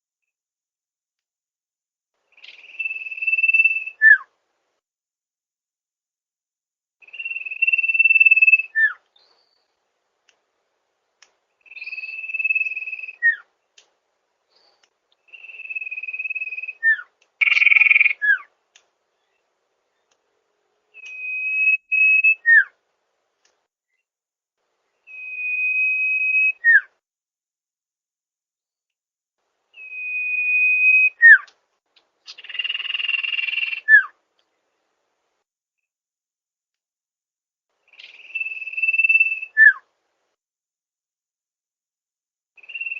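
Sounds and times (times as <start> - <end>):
bird trilled whistle call: 2.3 - 4.3, 7.0 - 9.6, 11.6 - 13.4, 15.3 - 18.5, 21.0 - 22.7, 25.0 - 26.9, 29.8 - 31.5, 32.3 - 34.1, 37.9 - 39.8, 42.6 - 42.9.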